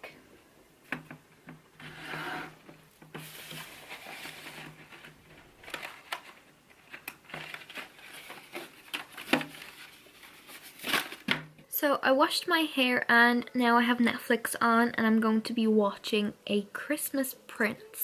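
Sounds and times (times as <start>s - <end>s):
soft rustling and handling: 2.6s - 11.4s.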